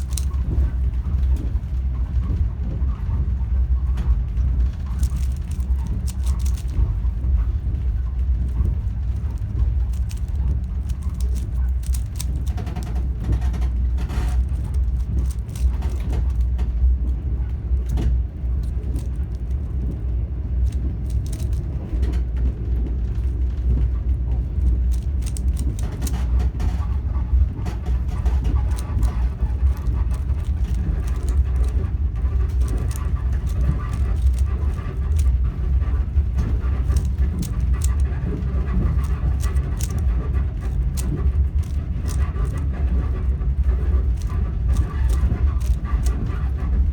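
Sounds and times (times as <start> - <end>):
puzzle cube clicking: 0.0 - 0.5, 5.0 - 6.8, 9.4 - 13.1, 14.4 - 16.6, 18.6 - 19.6, 20.6 - 21.7, 24.6 - 26.2, 28.5 - 31.8, 32.5 - 35.4, 38.9 - 40.0, 40.7 - 42.6, 44.1 - 46.2
moving train rumble: 0.0 - 46.9.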